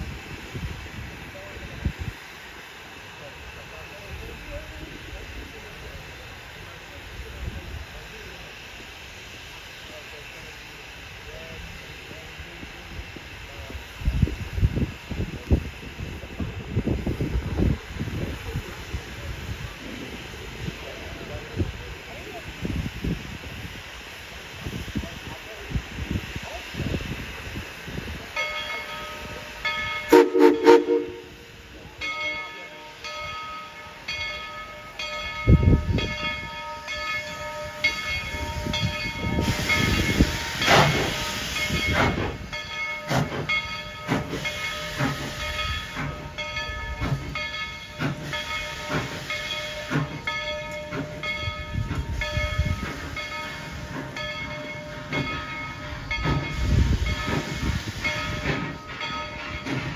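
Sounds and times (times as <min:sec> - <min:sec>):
steam hissing: 0:00.0 - 0:59.9
steam locomotive whistle: 0:30.0 - 0:31.6, 0:39.4 - 0:42.3.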